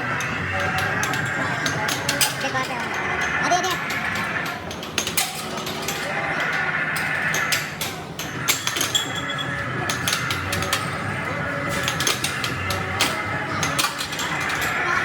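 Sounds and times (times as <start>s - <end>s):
chatter of many voices: 0.0s - 15.0s.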